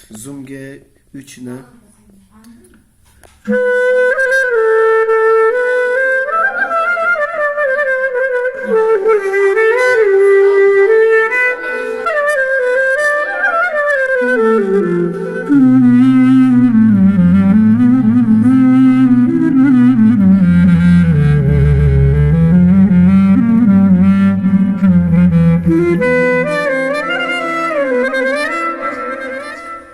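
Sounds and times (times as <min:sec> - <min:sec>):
clarinet-like synth melody: 0:03.5 - 0:29.9.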